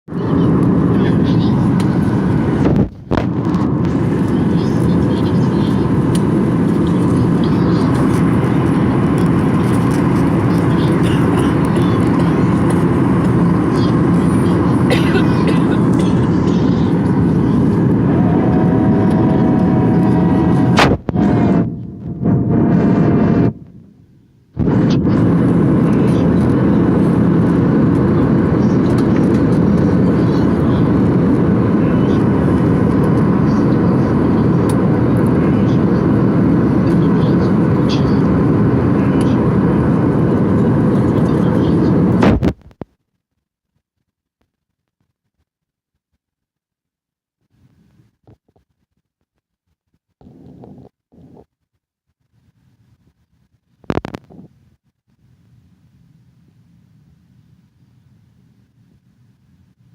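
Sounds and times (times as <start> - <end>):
airliner cabin engine noise: 0.1 - 42.8, 50.2 - 51.5, 52.8 - 54.6.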